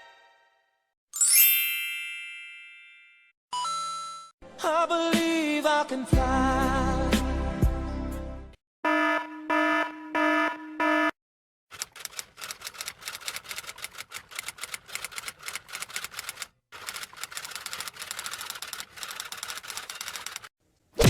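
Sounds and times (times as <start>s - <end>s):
typewriter keys clacking: 11.7s - 20.5s.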